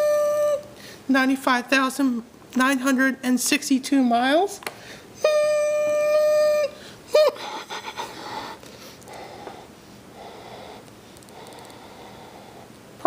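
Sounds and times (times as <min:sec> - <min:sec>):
faint clicks and handling noise: 0:10.8 - 0:11.8.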